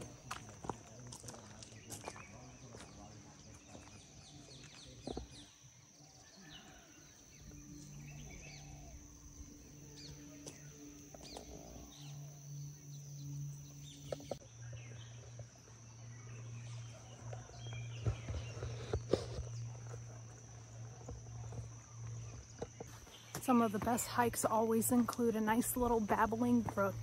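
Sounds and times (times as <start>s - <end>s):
birds chirping and calling: 1.1s - 27.0s
low hum: 7.2s - 27.0s.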